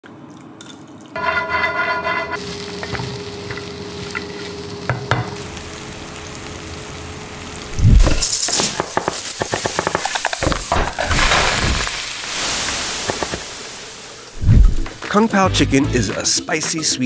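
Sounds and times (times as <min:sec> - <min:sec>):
food sizzling in a wok: 0:01.2 - 0:15.0.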